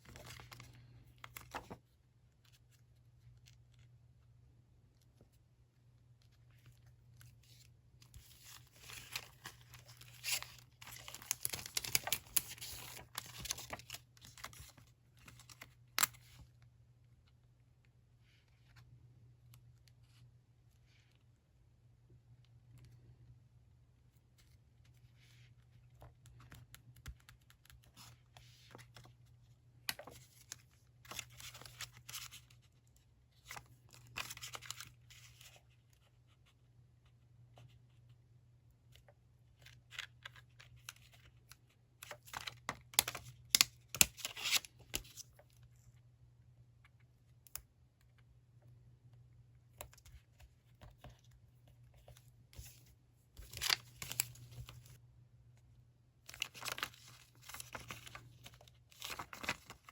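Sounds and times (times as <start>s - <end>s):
paper rustling and crinkling: 0.0s - 3.8s, 6.2s - 16.4s, 29.9s - 32.6s, 33.3s - 36.1s, 39.6s - 45.5s, 51.9s - 55.0s, 56.3s - 59.9s.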